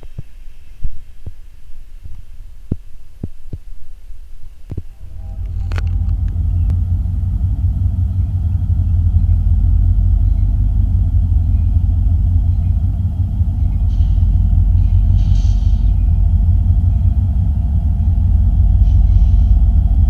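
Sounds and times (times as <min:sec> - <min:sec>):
freight train rumbling: 0:04.4 - 0:20.0.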